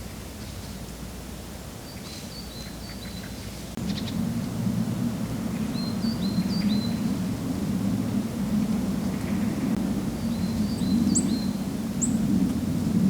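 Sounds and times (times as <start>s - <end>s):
steady low rumble: 3.7s - 13.0s.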